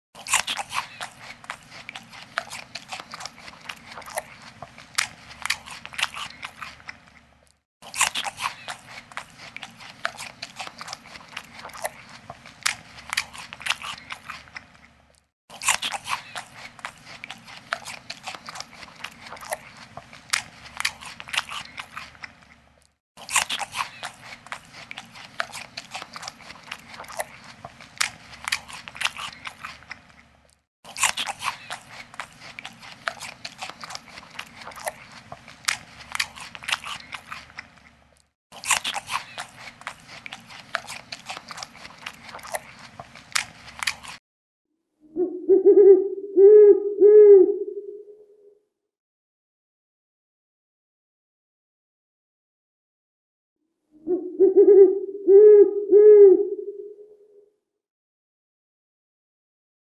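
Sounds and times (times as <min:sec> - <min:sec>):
animal crunching food: 0:00.2 - 0:44.2.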